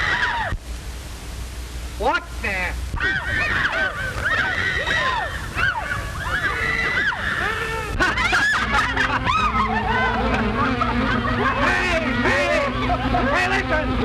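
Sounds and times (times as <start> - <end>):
crowd of voices crying out: 0.0 - 0.6, 3.0 - 14.0.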